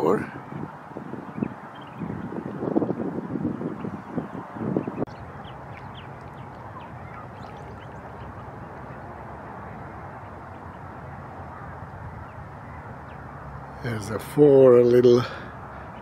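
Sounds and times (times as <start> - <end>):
wind gust on microphone: 0.0 - 16.0
ducklings peeping: 3.6 - 13.4.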